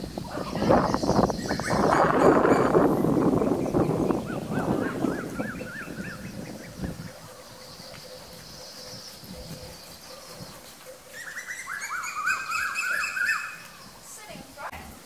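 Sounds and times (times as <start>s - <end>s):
birds chirping: 0.0s - 14.7s
bird whistle: 11.2s - 13.8s.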